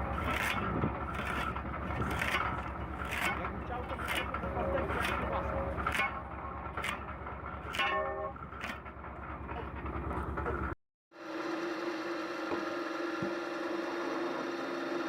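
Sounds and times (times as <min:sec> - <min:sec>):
engine with low beat: 0:00.0 - 0:10.8.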